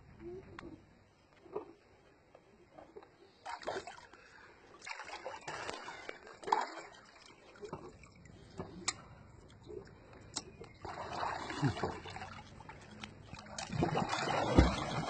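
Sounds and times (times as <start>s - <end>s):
pool water splashing: 3.4s - 8.2s, 10.8s - 15.0s.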